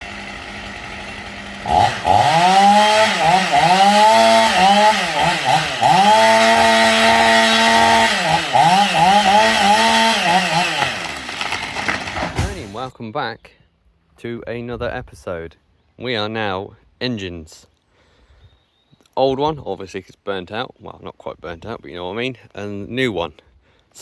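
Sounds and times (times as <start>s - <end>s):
small engine revving: 0.0s - 12.8s.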